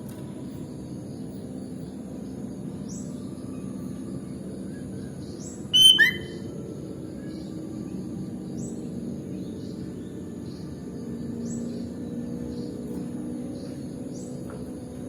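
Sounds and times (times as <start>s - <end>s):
low background hum: 0.0s - 15.0s
faint high rising chirps: 5.6s - 6.6s
bulbul call: 5.8s - 6.4s.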